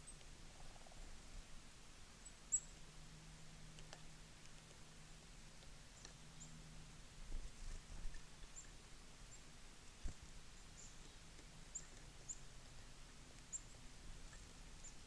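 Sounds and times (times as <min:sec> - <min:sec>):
small birds chirping: 0:00.0 - 0:01.1, 0:02.2 - 0:02.9, 0:03.8 - 0:06.7, 0:07.8 - 0:15.0
low background hum: 0:00.0 - 0:15.0.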